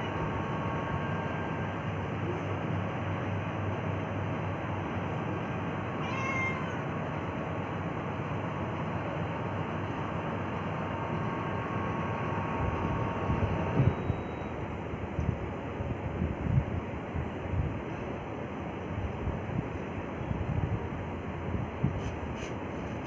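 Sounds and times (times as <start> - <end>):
cat meowing: 6.0 - 6.8.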